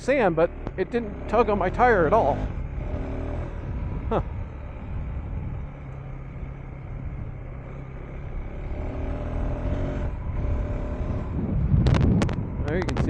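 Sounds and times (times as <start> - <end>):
motorcycle engine running: 0.0 - 13.0
wind and tyre noise: 0.0 - 13.0.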